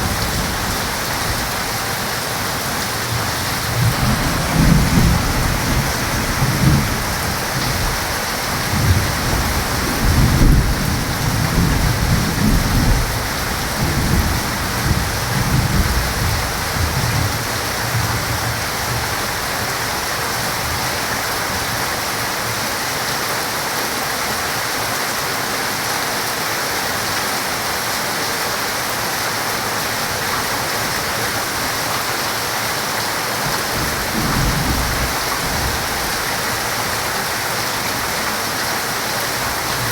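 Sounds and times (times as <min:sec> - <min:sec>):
thunder rumbling: 0:00.0 - 0:19.5, 0:33.4 - 0:38.2
heavy rain falling: 0:00.0 - 0:39.9.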